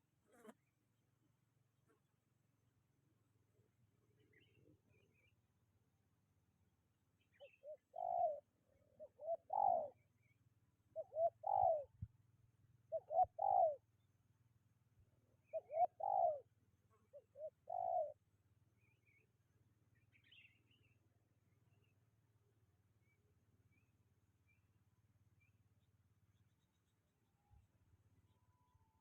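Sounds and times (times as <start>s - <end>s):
dove cooing: 7.4s - 10.0s, 11.0s - 12.0s, 12.9s - 13.8s, 15.5s - 16.4s, 17.1s - 18.2s.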